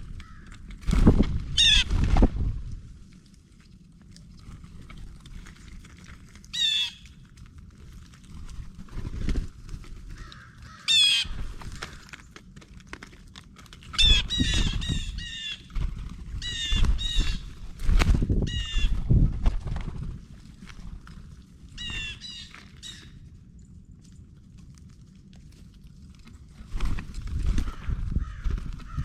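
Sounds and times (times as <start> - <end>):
low rumbling: 0.0 - 12.1.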